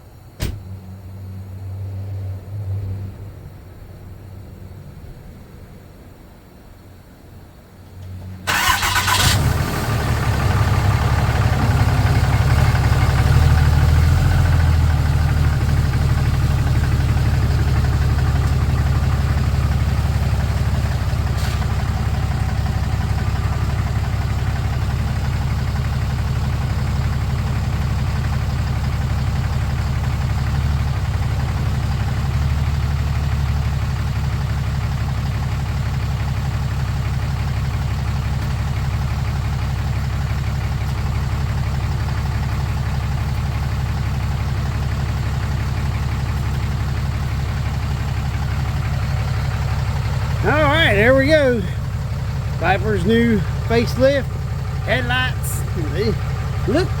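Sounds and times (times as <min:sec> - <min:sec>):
truck engine idling: 0:08.1 - 0:57.0
truck engine cranking: 0:08.2 - 0:15.9, 0:48.6 - 0:57.0.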